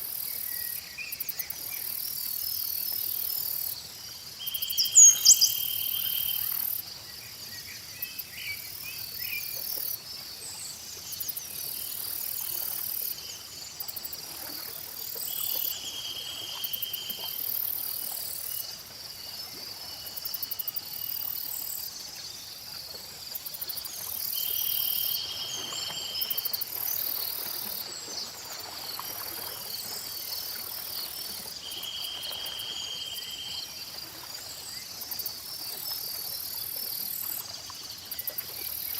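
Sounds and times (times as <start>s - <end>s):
insects chirping: 0.0s - 38.9s
steady insect trill: 0.0s - 38.9s
birds chirping: 4.7s - 5.6s.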